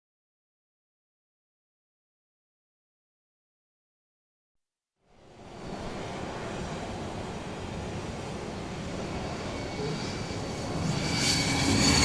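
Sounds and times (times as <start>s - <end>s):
jet engine starting up: 9.4s - 12.0s.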